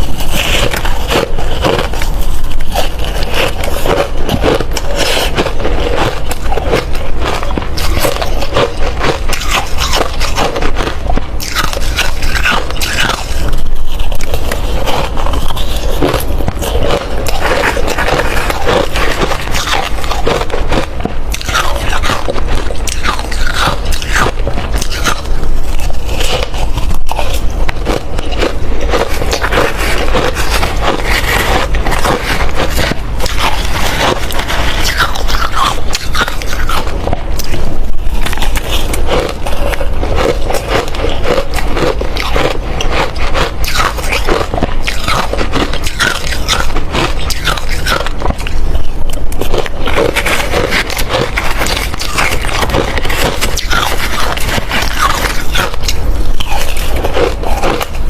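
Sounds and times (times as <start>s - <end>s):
ice being chewed: 0.0s - 58.0s.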